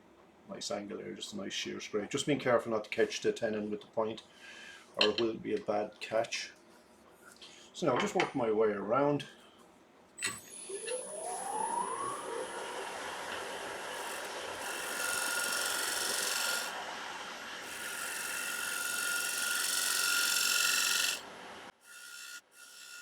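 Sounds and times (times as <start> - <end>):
lathe whine: 10.4 - 23.0
scraper cutting wood on lathe: 10.9 - 23.0.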